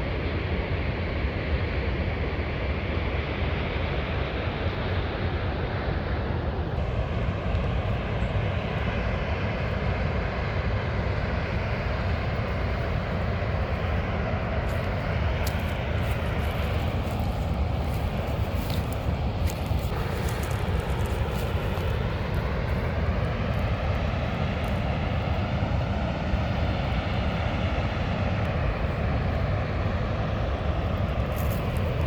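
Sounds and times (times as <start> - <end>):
vehicle engine and road noise: 6.8 - 32.0.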